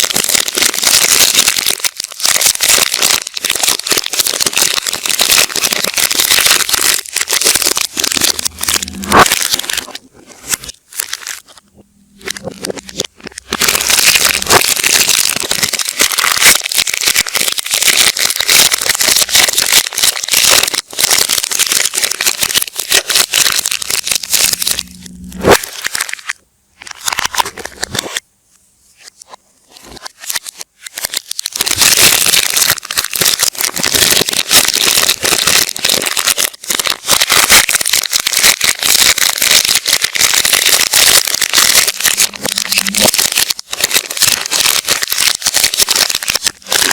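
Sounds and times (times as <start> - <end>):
wrappers crinkling and tearing: 0.0 - 28.2, 29.0 - 46.9.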